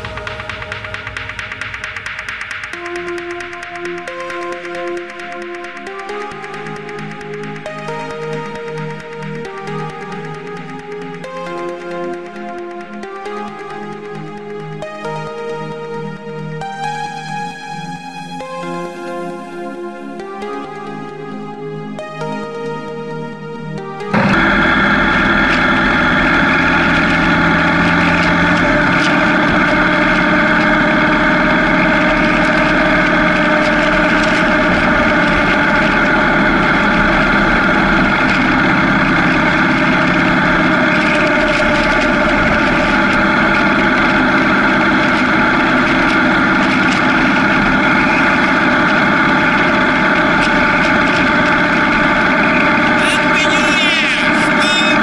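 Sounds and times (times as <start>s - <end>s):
motorcycle engine running: 0.0s - 6.8s, 24.2s - 55.0s.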